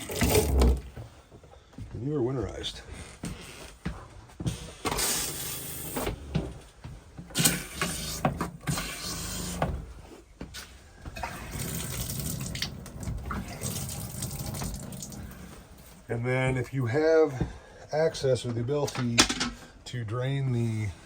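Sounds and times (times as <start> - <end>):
tap water running into sink: 11.2 - 15.5.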